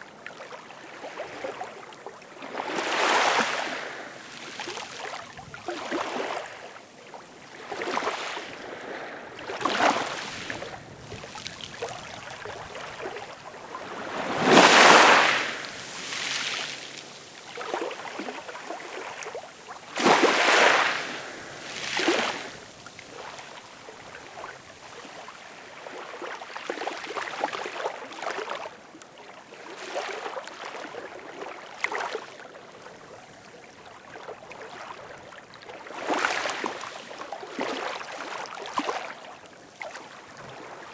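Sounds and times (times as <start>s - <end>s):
ocean waves breaking: 2.4s - 26.0s.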